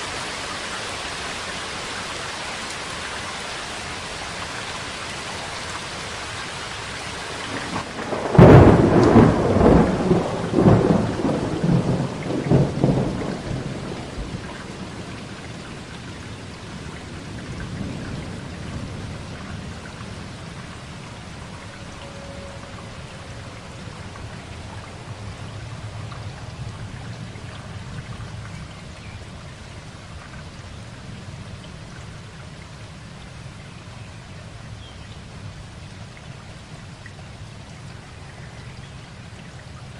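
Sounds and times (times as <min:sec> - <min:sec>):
steady rain: 0:00.0 - 0:39.9
thunder rumbling: 0:07.5 - 0:28.4.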